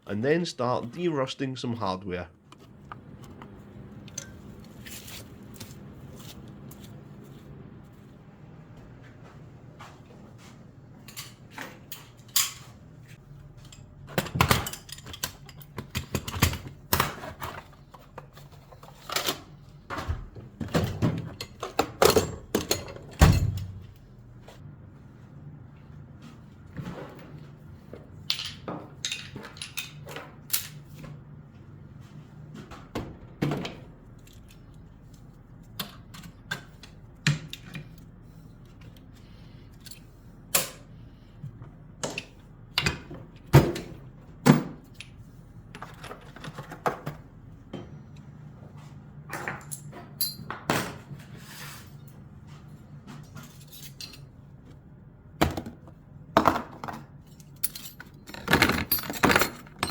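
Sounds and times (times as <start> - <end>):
metal tools clinking: 28.3 - 30.8, 53.4 - 54.3, 57.2 - 59.9.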